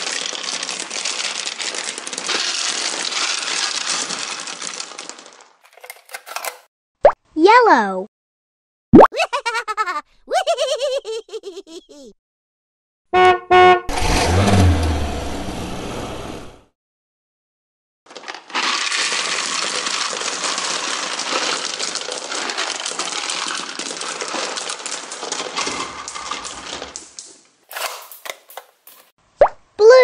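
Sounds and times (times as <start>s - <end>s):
plastic beads pouring and rattling: 0.0s - 5.8s, 18.1s - 27.4s
rushing sound with low rumble: 13.9s - 16.6s.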